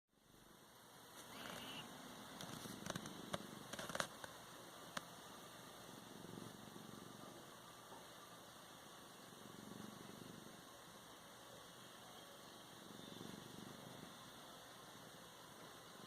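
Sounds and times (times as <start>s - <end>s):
cat purring: 0.2s - 16.0s
sharp clicks and rustles: 2.4s - 5.2s.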